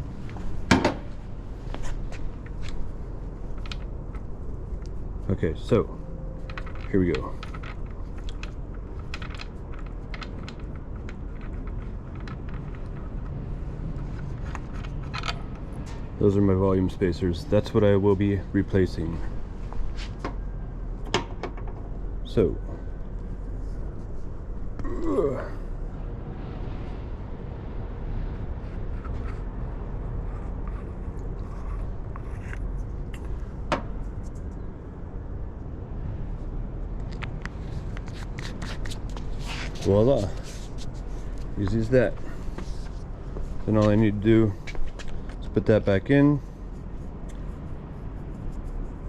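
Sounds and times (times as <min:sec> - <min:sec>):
steady background noise: 0:00.0 - 0:49.0
steady low background hum: 0:00.0 - 0:49.0.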